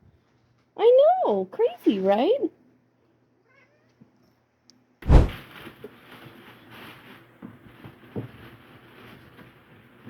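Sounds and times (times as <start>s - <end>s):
heavy thump: 5.0s - 5.4s.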